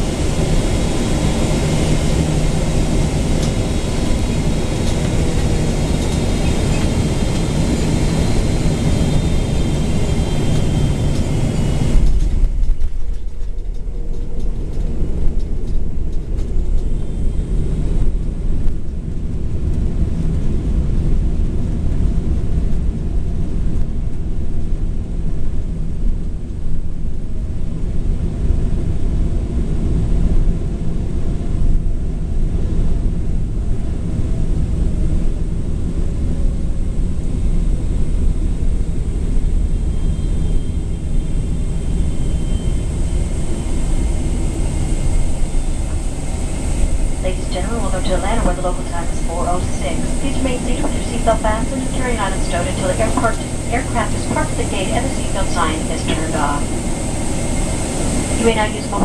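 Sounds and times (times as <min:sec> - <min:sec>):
jet engine whine and hum: 0:00.0 - 0:59.0
cabin airflow rush: 0:41.4 - 0:59.0.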